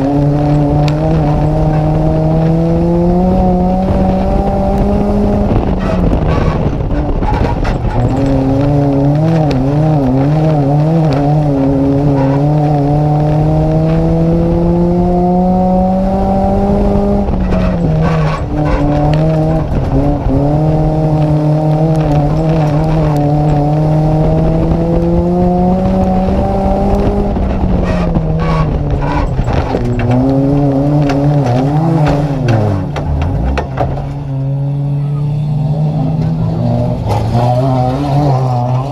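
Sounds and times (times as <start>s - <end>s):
race car engine at high revs: 0.0s - 38.9s
short knocks and rattles: 27.4s - 34.4s.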